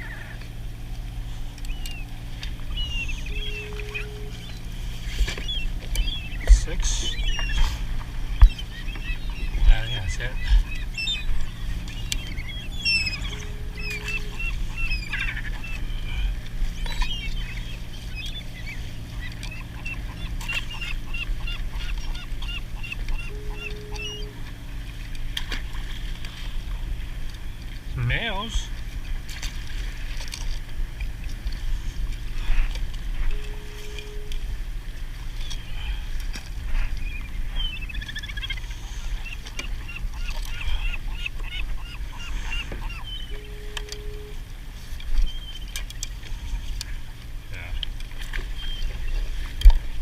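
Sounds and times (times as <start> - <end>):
low rumble of wind and water: 0.0 - 50.0
waterbirds calling: 0.0 - 50.0
bird calling rapid notes: 1.6 - 4.7, 5.4 - 24.4
short steady tone: 3.2 - 4.6, 23.2 - 24.4, 33.2 - 34.4, 43.3 - 44.4.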